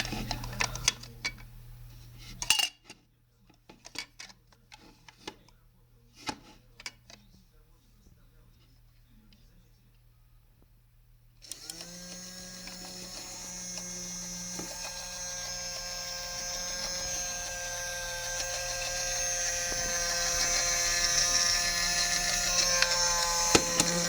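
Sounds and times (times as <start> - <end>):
small electric motor whine: 11.4 - 24.0.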